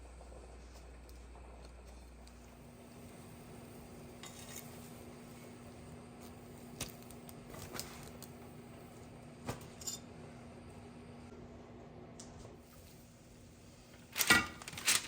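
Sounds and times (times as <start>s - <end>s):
dishes and utensils clinking: 4.2s - 4.8s.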